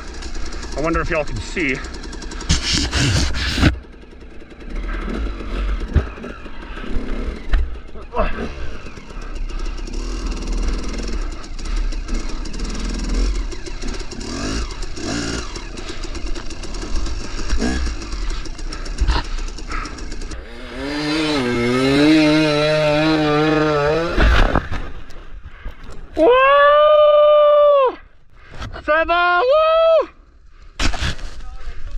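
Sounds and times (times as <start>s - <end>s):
dirt bike engine revving: 0.0s - 25.4s.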